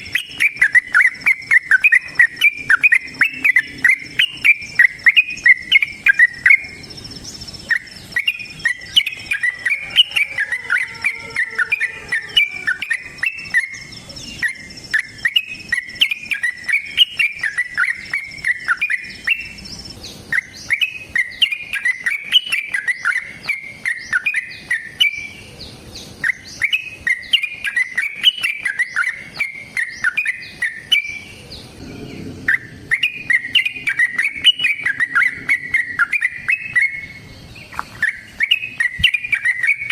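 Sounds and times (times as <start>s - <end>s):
bulbul singing: 0.0s - 39.9s
faint high-pitched tone: 31.8s - 35.7s.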